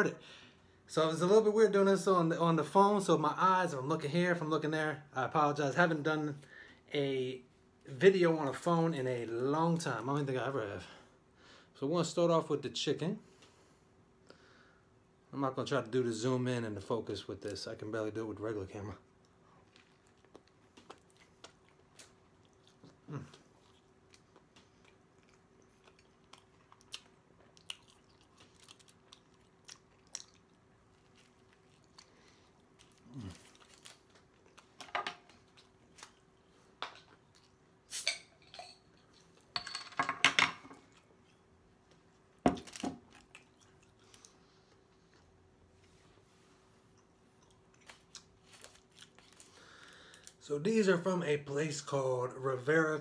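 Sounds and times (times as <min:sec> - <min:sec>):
faint steady hum: 0:00.0 - 0:53.0
man chewing moistly: 0:19.1 - 0:37.8, 0:43.0 - 0:50.4.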